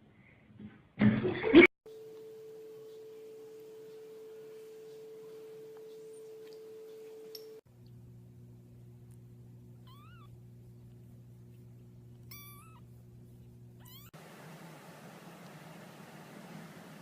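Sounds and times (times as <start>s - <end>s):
steady low hum: 1.9s - 17.0s
cat meowing: 9.8s - 10.3s, 12.3s - 12.9s, 13.8s - 14.1s.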